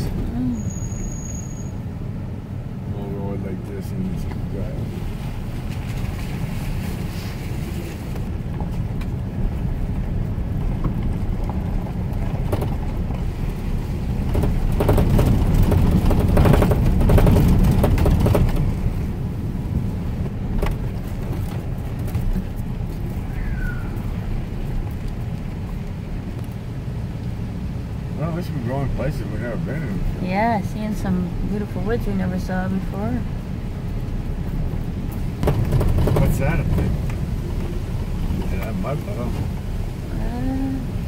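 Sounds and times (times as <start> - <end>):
truck engine and road rumble: 0.0 - 41.0
knocks and rattles: 10.5 - 19.1, 20.3 - 23.2, 34.7 - 39.7.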